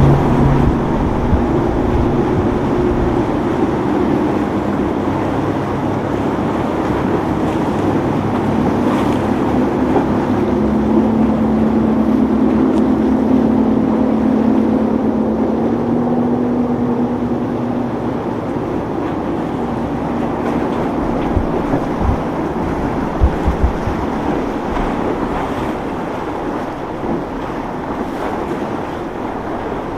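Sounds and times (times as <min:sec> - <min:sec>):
motorboat engine humming: 0:00.0 - 0:29.9
surf: 0:00.0 - 0:29.9
wind: 0:00.0 - 0:29.9.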